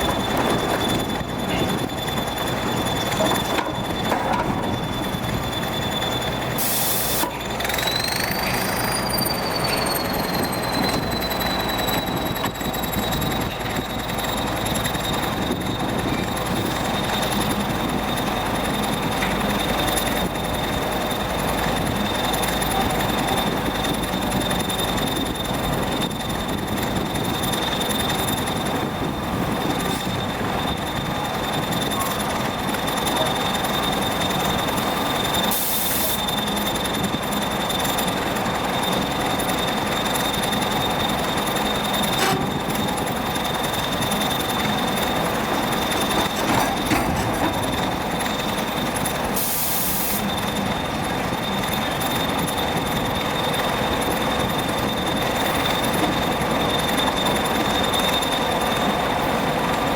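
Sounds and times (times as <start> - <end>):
constant high whine: 0.0 - 59.9
excavator machinery noise: 0.0 - 59.9.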